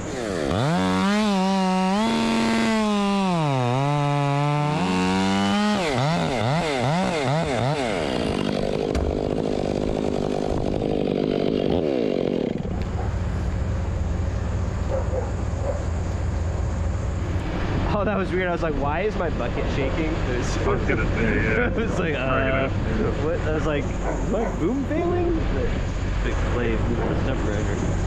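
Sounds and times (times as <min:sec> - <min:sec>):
chainsaw revving: 0:00.0 - 0:13.0
rough grinding noise: 0:00.0 - 0:13.3.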